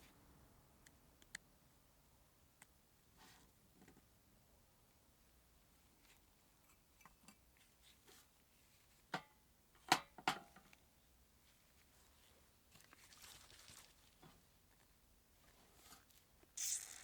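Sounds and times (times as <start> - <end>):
faint handling rustle: 5.6 - 9.1, 10.6 - 16.6.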